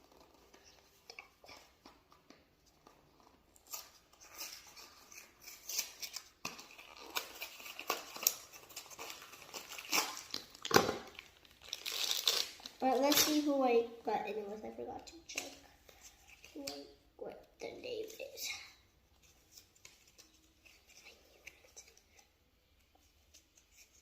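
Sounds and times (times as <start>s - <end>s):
packaging rustling: 2.8s - 13.5s.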